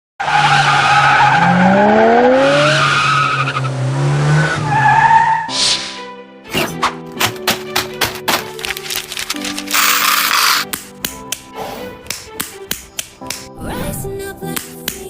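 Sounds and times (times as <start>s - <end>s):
race car engine revving: 1.2s - 4.8s
tyre squeal: 9.7s - 10.6s.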